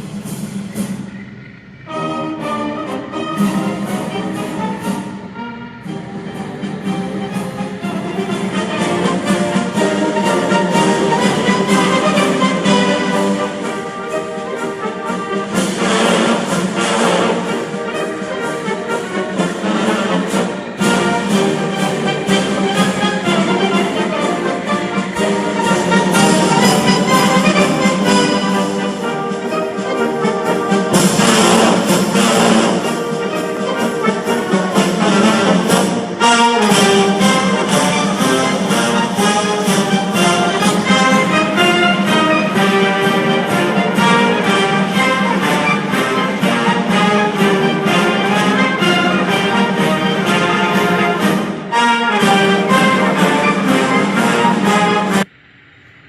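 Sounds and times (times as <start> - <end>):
orchestral brass chords: 1.7 - 55.3.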